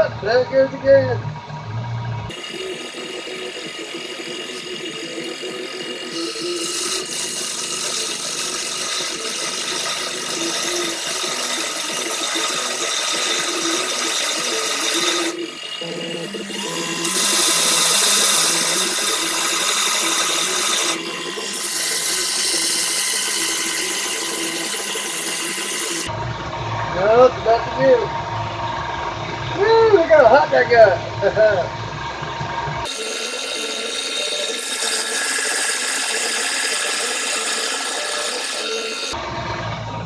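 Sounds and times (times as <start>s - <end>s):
power tool cutting metal screw: 2.3s - 26.1s, 32.9s - 39.2s.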